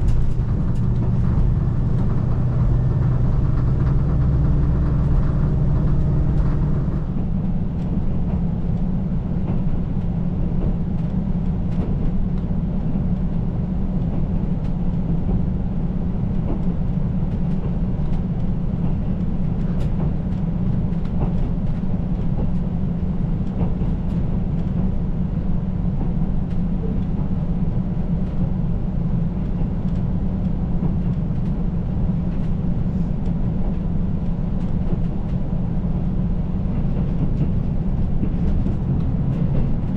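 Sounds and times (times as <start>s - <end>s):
pitched engine drone: 0.0s - 7.2s
diesel railcar rumbling: 0.0s - 39.9s.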